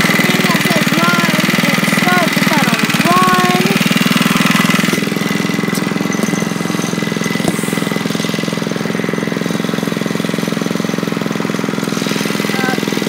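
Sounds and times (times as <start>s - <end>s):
minibike engine running: 0.0s - 13.0s.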